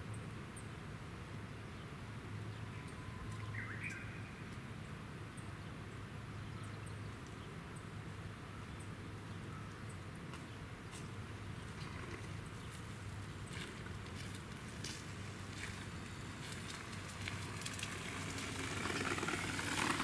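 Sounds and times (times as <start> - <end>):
bird call: 2.8 - 4.5.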